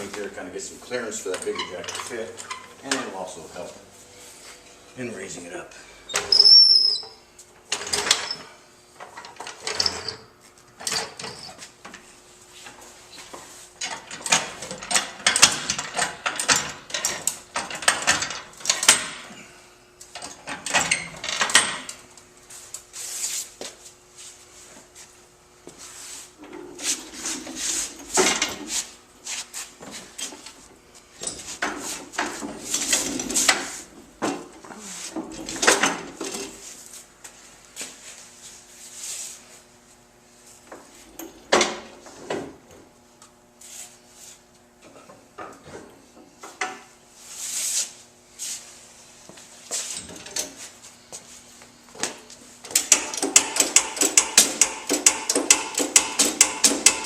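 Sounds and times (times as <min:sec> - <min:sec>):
car jack clicking and clanking: 0:13.8 - 0:19.3, 0:20.2 - 0:22.0, 0:52.6 - 0:57.0.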